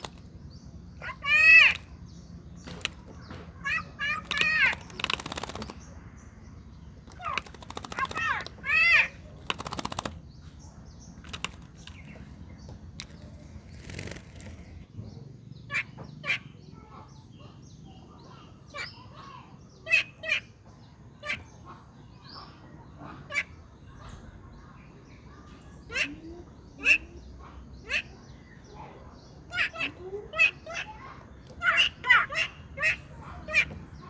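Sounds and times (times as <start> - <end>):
bird wingbeats: 0.0 - 0.3, 2.6 - 3.2, 4.0 - 5.9, 7.0 - 10.2, 11.2 - 12.2, 13.0 - 14.8.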